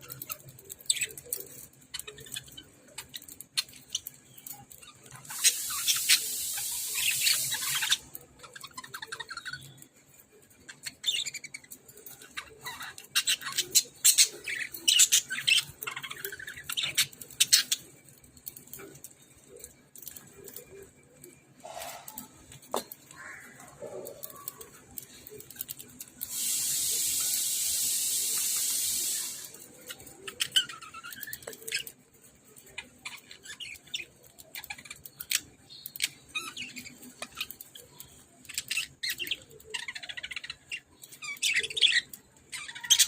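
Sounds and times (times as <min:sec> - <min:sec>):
loud steady hiss: 0:05.4 - 0:08.0, 0:26.2 - 0:29.6.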